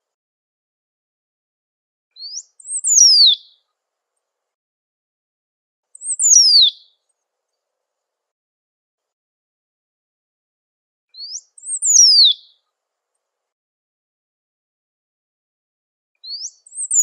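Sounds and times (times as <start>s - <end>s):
bird singing downward phrases: 2.2s - 3.4s, 6.0s - 6.8s, 11.2s - 12.6s, 16.2s - 17.0s.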